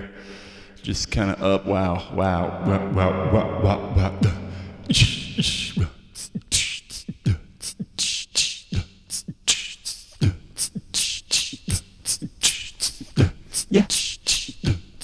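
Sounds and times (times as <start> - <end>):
beatboxed vocal kick drums: 0.9 - 15.0
beatboxed snare and hi-hat: 4.9 - 15.0.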